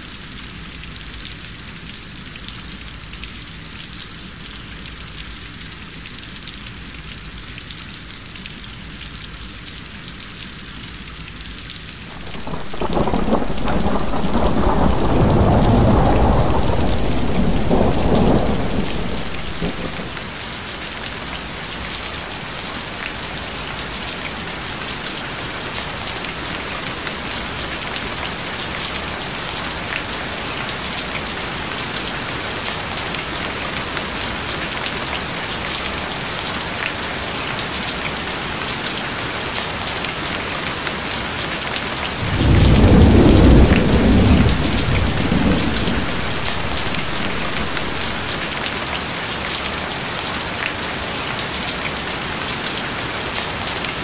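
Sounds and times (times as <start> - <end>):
steady rain: 0.0 - 54.0
low rumble of thunder: 12.1 - 20.4, 42.2 - 48.6.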